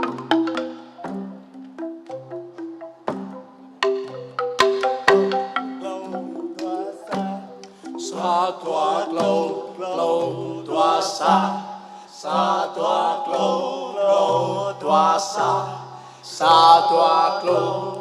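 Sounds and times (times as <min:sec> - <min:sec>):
held low accompanying notes: 0:00.0 - 0:18.0
person singing folk song: 0:05.8 - 0:18.0.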